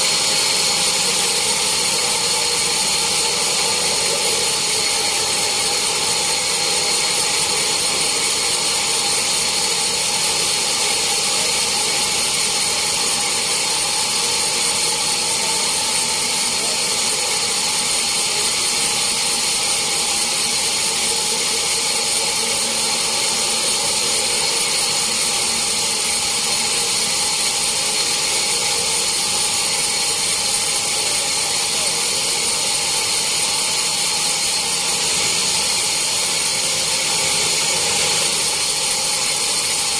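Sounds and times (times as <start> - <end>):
sawmill saw whining: 0.0 - 39.9.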